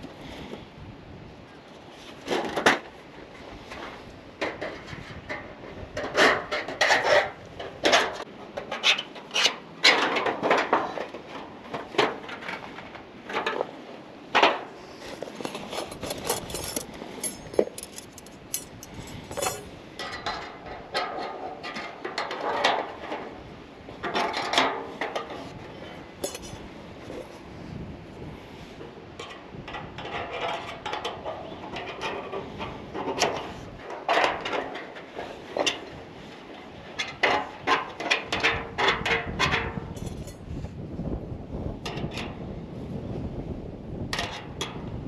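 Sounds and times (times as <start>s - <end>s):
hard objects knocking and clattering: 15.3s - 23.0s.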